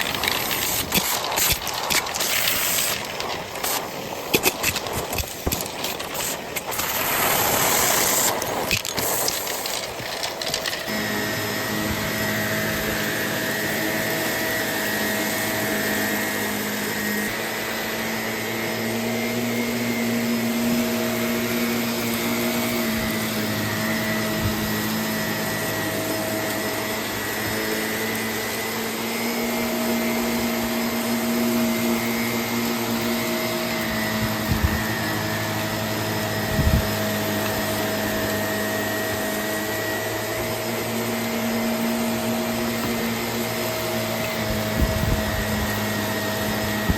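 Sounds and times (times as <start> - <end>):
vacuum cleaner running: 0.0 - 46.9.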